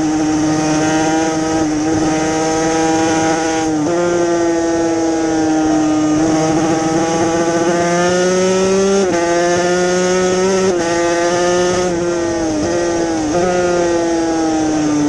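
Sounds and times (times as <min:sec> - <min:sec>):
racing motorcycle engine high revs: 0:00.0 - 0:15.0.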